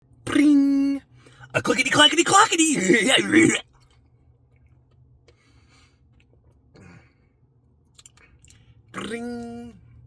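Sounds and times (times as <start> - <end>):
soft breaths: 5.2 - 6.2.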